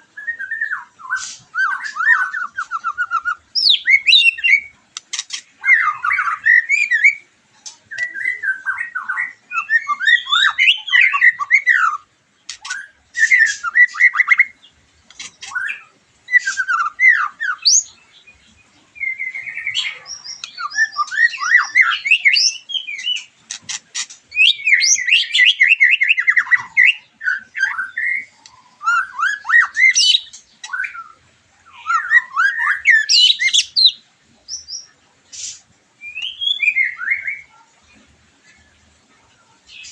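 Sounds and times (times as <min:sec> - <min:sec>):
bird singing whistled phrases: 0:00.2 - 0:04.7, 0:05.6 - 0:07.2, 0:07.9 - 0:14.6, 0:15.4 - 0:18.0, 0:19.0 - 0:23.3, 0:24.3 - 0:37.6
bird clicking and chattering: 0:04.9 - 0:05.5, 0:12.4 - 0:12.8, 0:15.0 - 0:15.6, 0:23.0 - 0:24.4.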